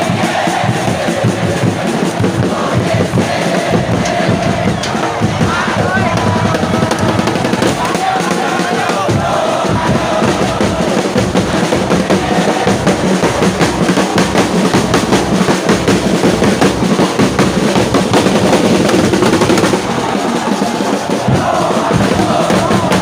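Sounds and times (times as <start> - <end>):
drums beating fast: 0.0 - 23.0
stadium crowd noise: 0.0 - 23.0.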